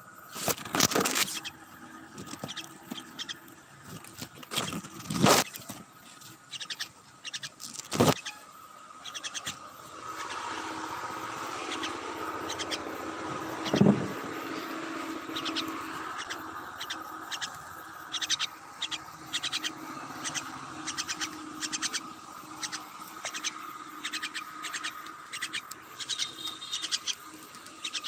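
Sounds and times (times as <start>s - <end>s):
faint steady hum: 0.0s - 28.0s
bird clicking: 9.0s - 28.0s.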